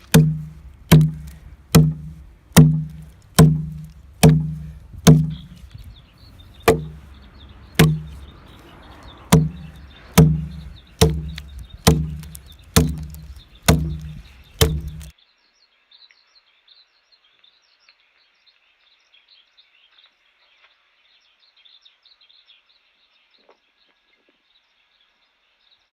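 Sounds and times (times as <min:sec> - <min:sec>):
adze chopping into log: 0:00.0 - 0:05.7, 0:06.7 - 0:07.0, 0:07.8 - 0:08.2, 0:09.3 - 0:15.1.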